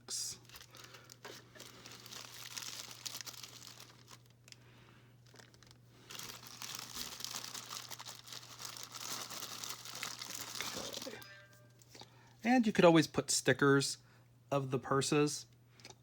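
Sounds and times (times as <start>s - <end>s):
packaging crinkling and rustling: 0.4s - 4.6s, 5.2s - 11.2s.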